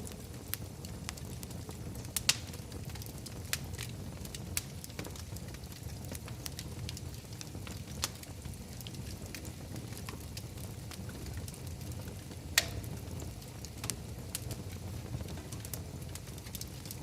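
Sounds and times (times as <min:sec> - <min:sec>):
low steady fire rumble: 0:00.0 - 0:17.0
wood fire crackling: 0:00.0 - 0:17.0
loud fire pop: 0:12.6 - 0:13.0.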